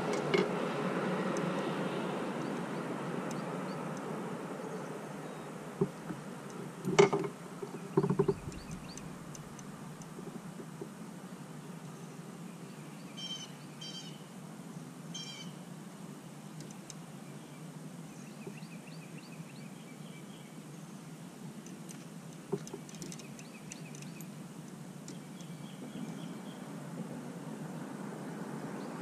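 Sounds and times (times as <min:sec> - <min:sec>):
harsh bird calls: 0:07.7 - 0:09.6
steady low rumble: 0:08.2 - 0:10.0.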